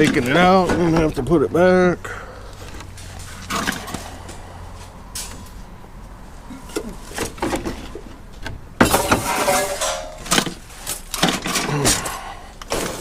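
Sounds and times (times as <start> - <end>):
scrap metal clanking: 8.8 - 13.0.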